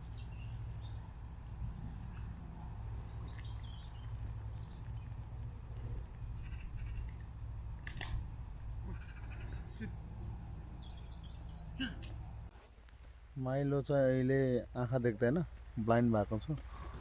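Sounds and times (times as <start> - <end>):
small birds chirping: 0.0 - 12.5
low outdoor rumble: 0.0 - 17.0.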